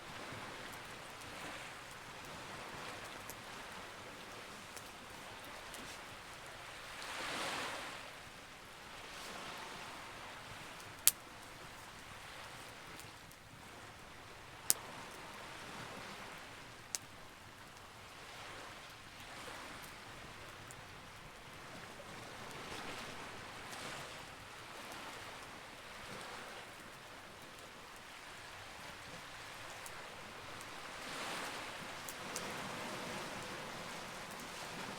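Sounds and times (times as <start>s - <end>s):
sea waves rushing: 0.0s - 8.1s, 28.2s - 34.9s
campfire crackling and popping: 10.6s - 13.6s, 14.5s - 14.9s, 29.2s - 34.9s.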